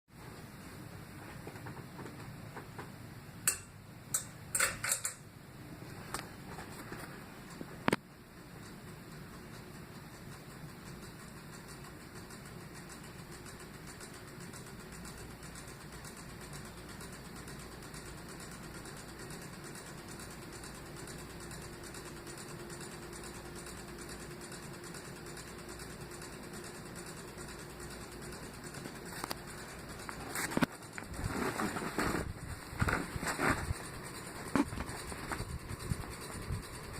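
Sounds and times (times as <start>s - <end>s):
ceiling fan motor hum: 0.2s - 36.9s
click: 7.5s - 8.0s.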